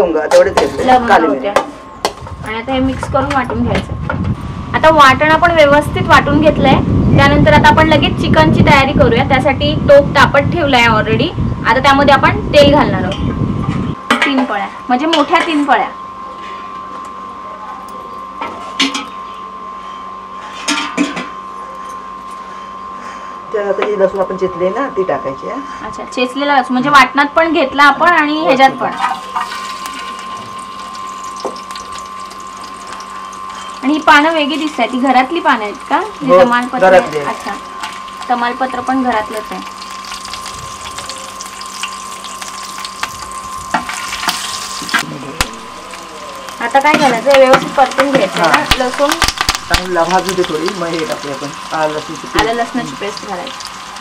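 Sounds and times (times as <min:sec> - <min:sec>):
high-pitched whine: 0:00.0 - 0:54.0
garlic sizzling in hot oil: 0:28.9 - 0:54.0.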